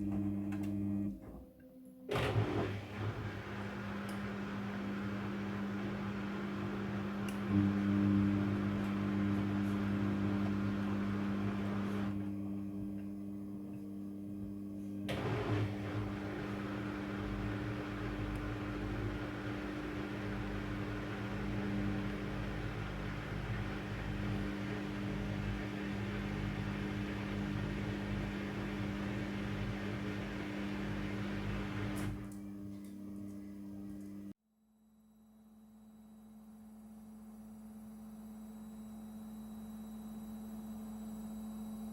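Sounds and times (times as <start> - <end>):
washing machine motor hum: 2.1 - 34.4.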